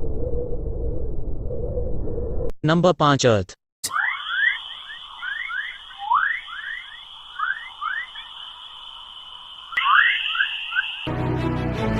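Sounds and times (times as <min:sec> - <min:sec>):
steady high-pitched tone: 0:03.8 - 0:11.7
short rising chirps: 0:03.9 - 0:11.6.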